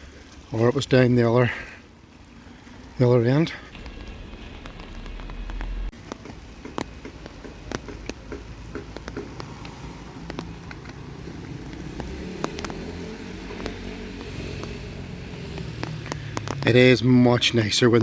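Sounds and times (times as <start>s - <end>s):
low steady rumble: 1.9s - 6.0s
raindrops ticking on umbrella: 3.6s - 17.1s.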